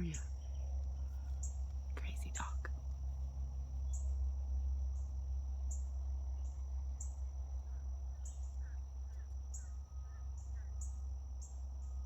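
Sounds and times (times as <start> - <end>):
insect chirping: 0.0 - 12.0
insects droning: 0.0 - 12.0
faint bird chirps: 5.7 - 12.0.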